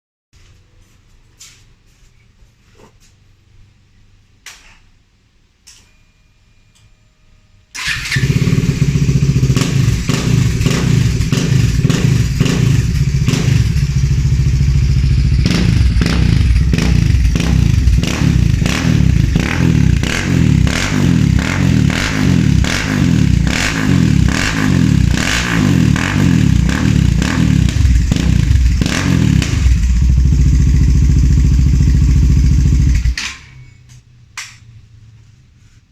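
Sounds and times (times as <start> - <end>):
motorcycle engine revving: 7.8 - 33.2.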